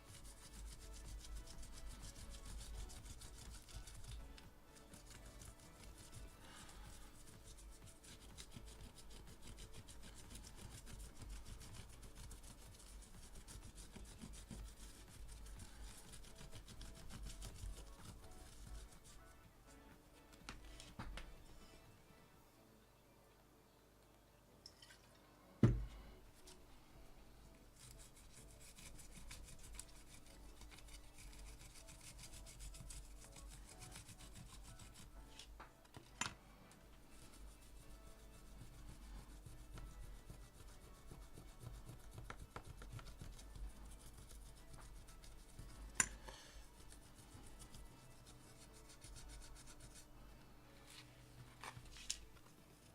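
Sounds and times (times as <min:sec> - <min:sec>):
scratching on circuit board: 0:00.0 - 0:19.4, 0:27.7 - 0:35.5, 0:37.1 - 0:50.1.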